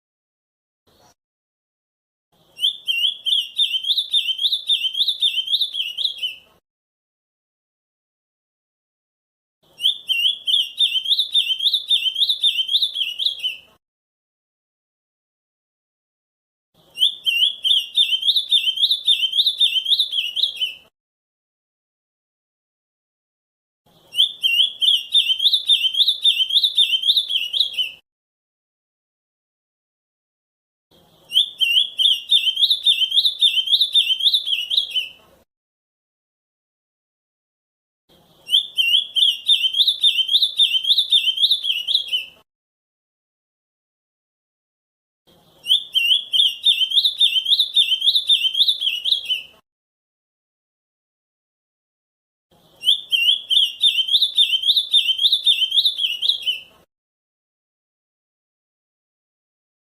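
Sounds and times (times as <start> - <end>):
bird singing whistled notes: 2.5 - 6.5, 9.7 - 13.7, 16.9 - 20.9, 24.0 - 28.0, 31.2 - 35.2, 38.4 - 42.4, 45.4 - 49.6, 52.7 - 56.7.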